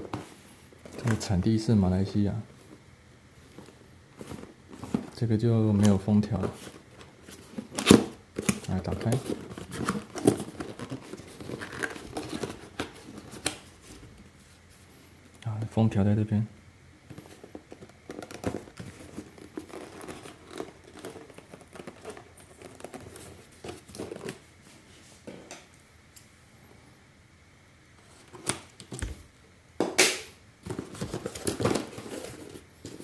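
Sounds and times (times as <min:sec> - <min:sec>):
packaging crinkling: 0:03.5 - 0:14.0, 0:17.1 - 0:24.4.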